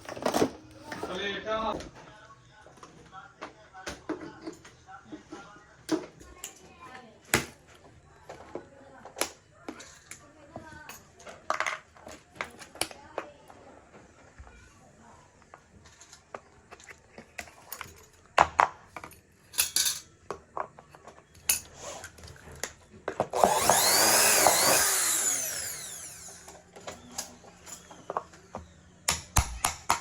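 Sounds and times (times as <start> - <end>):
power tool running: 23.2 - 27.1.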